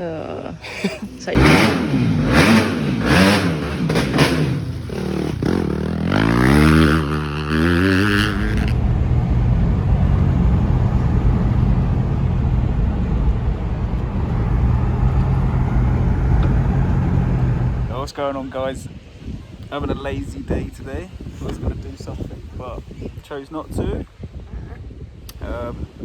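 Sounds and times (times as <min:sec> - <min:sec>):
car engine drone with road noise: 0:00.0 - 0:18.2
dirt bike engine revving: 0:01.1 - 0:08.8.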